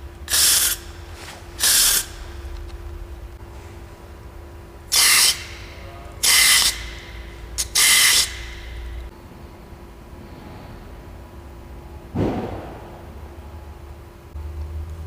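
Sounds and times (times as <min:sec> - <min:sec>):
steady low hum: 0:00.0 - 0:15.0
pressurised spray blasts: 0:00.2 - 0:02.3, 0:06.2 - 0:07.0.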